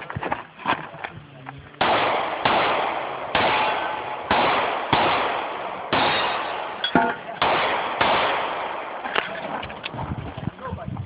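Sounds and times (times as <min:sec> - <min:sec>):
echoing gunshots: 0:01.8 - 0:09.3.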